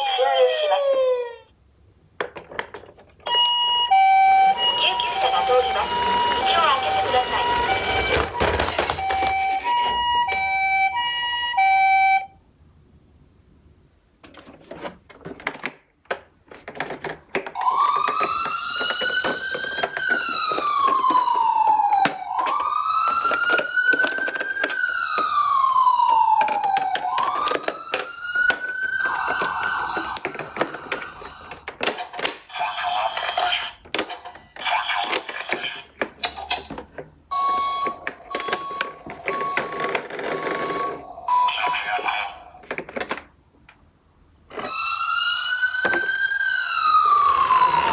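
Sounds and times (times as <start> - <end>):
toy wailing siren: 0.0 - 1.5, 3.3 - 12.4, 17.6 - 31.7, 37.3 - 42.6, 44.5 - 47.9
plastic clicks and clatter: 2.2 - 3.3, 7.7 - 10.4, 14.2 - 25.4, 26.0 - 32.5, 33.2 - 37.2, 42.6 - 43.8.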